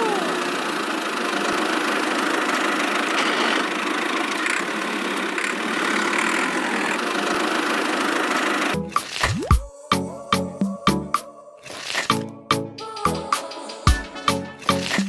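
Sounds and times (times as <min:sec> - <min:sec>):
small motor running: 0:00.0 - 0:09.5, 0:11.6 - 0:12.3, 0:14.6 - 0:15.0.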